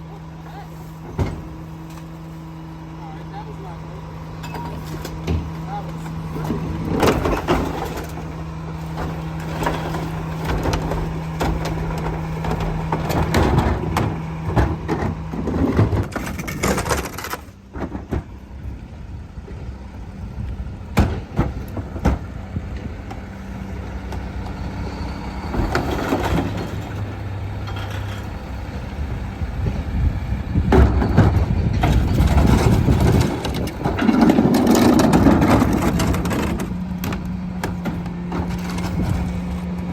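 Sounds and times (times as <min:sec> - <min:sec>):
garbage truck running: 0:00.0 - 0:39.9
clanks and knocks: 0:04.4 - 0:18.4, 0:21.0 - 0:23.2, 0:30.6 - 0:39.9.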